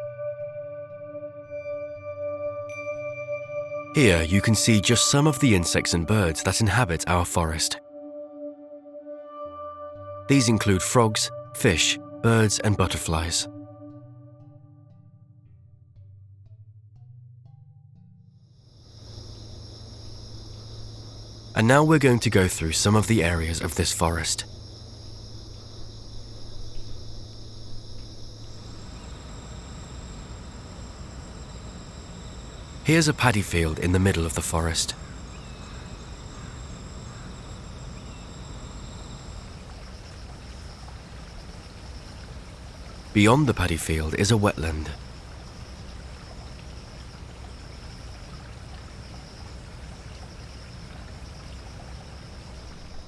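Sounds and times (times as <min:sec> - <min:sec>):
insects chirping: 0:04.0 - 0:07.8, 0:10.3 - 0:13.5, 0:18.5 - 0:53.0
low hum: 0:19.0 - 0:53.0
water trickling: 0:28.5 - 0:53.0.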